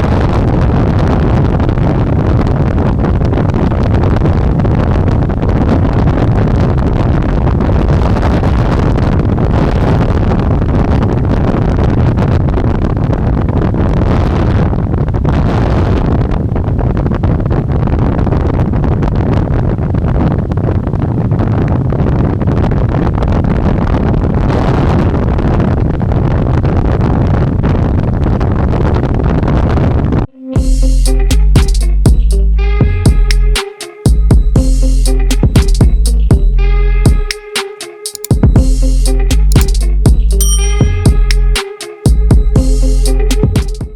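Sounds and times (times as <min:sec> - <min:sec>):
wind buffeting microphone: 0:00.0 - 0:30.3.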